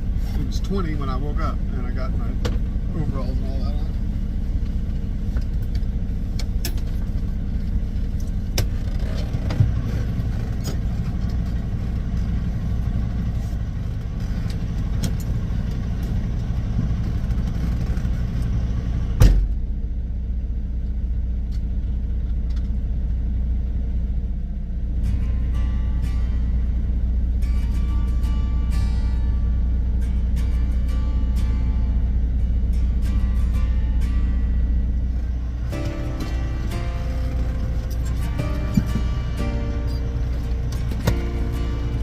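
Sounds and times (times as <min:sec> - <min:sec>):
truck diesel engine rumbling: 0:00.0 - 0:42.0
loud thump: 0:19.2 - 0:19.6.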